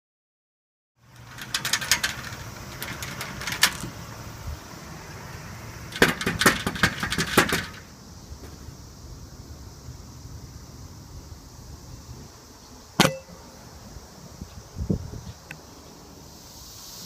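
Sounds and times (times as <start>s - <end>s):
knocks and rattles: 1.2s - 4.0s, 5.9s - 7.9s.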